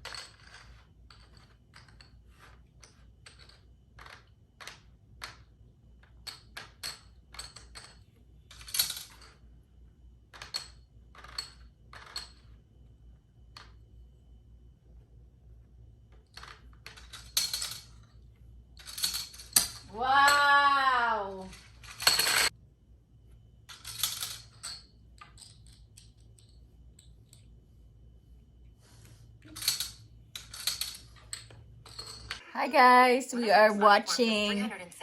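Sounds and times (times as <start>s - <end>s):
person exclaiming: 19.9s - 21.5s.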